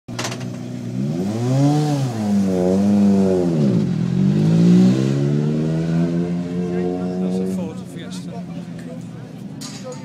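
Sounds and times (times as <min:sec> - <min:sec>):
rally car engine revving: 0:00.4 - 0:09.4.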